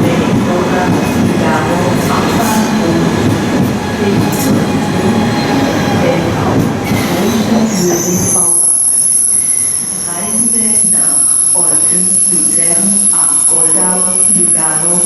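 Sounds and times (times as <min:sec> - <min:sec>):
train rumbling on track: 0:00.0 - 0:08.5.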